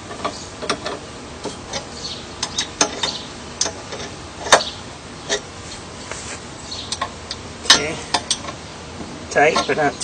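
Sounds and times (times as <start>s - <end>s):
metallic clicks of bolts tightened: 0.1s - 4.7s, 6.9s - 8.6s.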